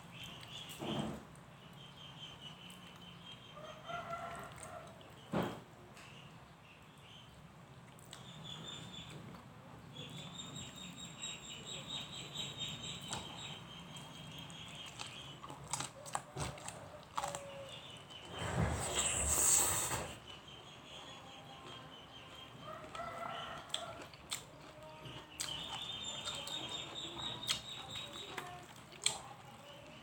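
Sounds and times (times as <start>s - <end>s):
chickens: 21.0s - 30.0s.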